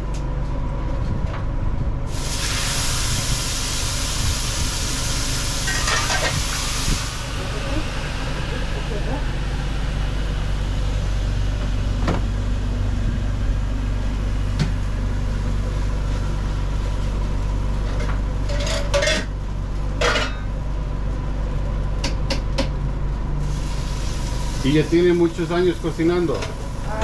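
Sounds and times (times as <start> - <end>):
kitchen machinery humming: 0.0 - 27.0
metal utensils and pans clattering: 5.7 - 6.4, 18.5 - 19.3, 20.0 - 20.4.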